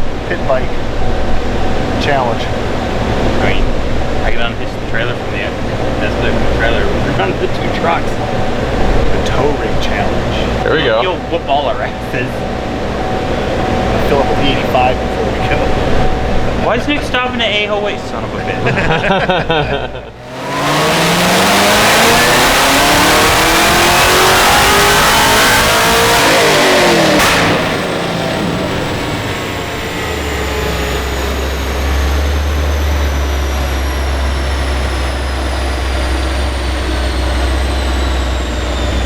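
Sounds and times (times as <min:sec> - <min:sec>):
vehicle engine accelerating: 0:01.0 - 0:39.0.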